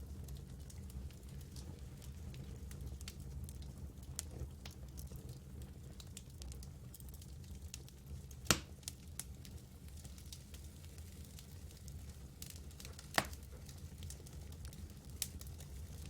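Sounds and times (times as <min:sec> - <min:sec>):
campfire crackling: 0:00.1 - 0:16.0
loud sharp pop: 0:08.5 - 0:08.7.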